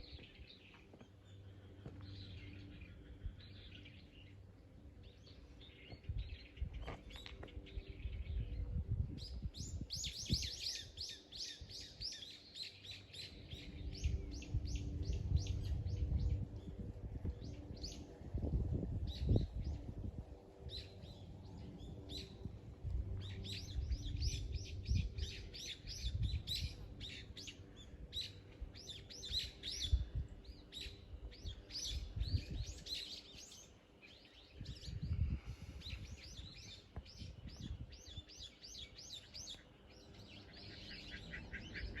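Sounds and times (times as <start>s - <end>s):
small birds chirping: 20.6s - 42.0s.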